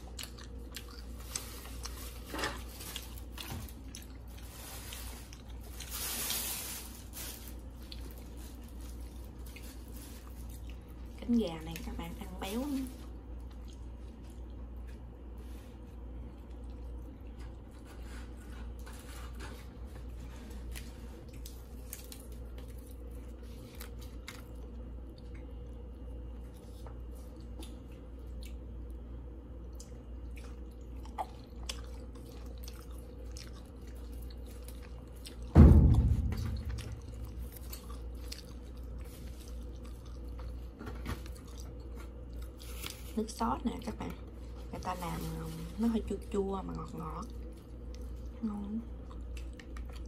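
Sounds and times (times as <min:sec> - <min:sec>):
person chewing crispy chicken: 0:00.0 - 0:11.2, 0:13.0 - 0:35.5, 0:36.6 - 0:43.2, 0:47.1 - 0:50.0
loud thump: 0:35.5 - 0:37.4.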